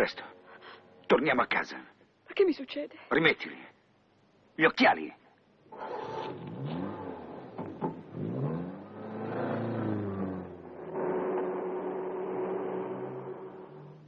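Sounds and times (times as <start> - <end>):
car engine accelerating: 5.7 - 14.0.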